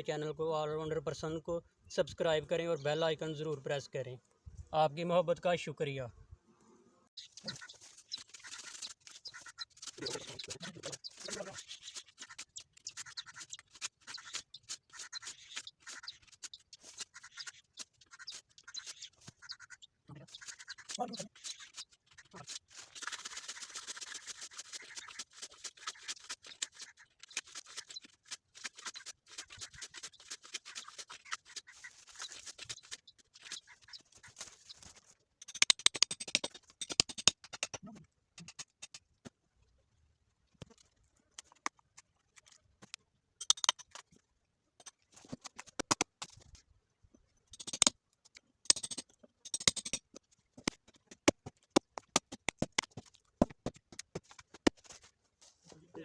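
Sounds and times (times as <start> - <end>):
hand tool scraping plant stem: 7.4 - 19.6, 20.3 - 37.8.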